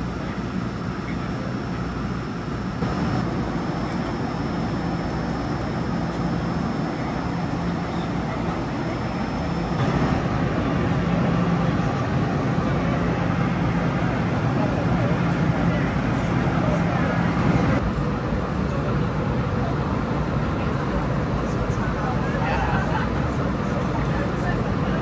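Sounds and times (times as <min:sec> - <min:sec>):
train rumbling: 0:02.8 - 0:18.1.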